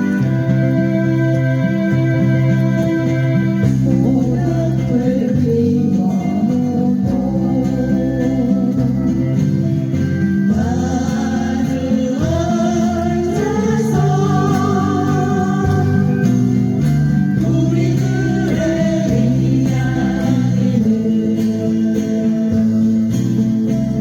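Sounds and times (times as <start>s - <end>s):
acoustic guitars strumming: 0.0s - 24.0s
person singing: 2.3s - 9.4s, 10.5s - 16.6s, 17.4s - 23.1s.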